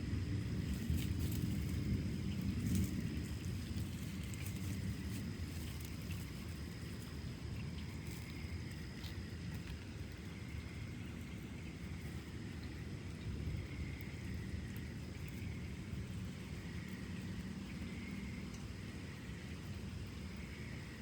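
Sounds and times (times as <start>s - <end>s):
low thunder rumble: 0.0s - 9.5s
faint ticks: 0.7s - 20.8s.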